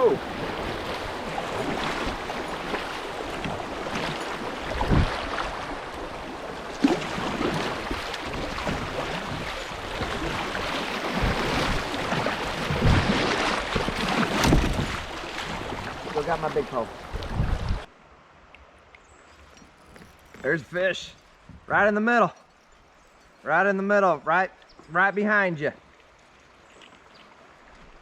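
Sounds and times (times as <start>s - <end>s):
water rushing and splashing: 0.0s - 22.2s, 24.9s - 28.0s
dull thumps against hull: 11.2s - 16.0s.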